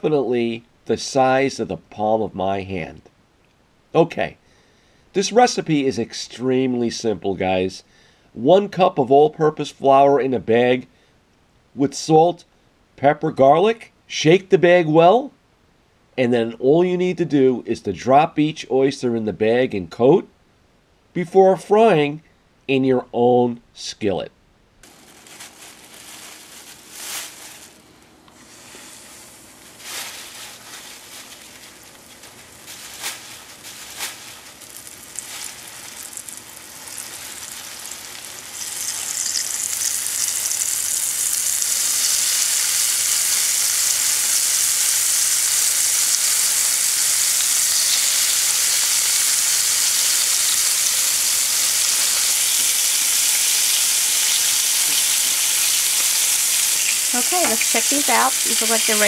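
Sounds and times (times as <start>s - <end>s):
oysters sizzling in hot oil: 28.4s - 59.0s.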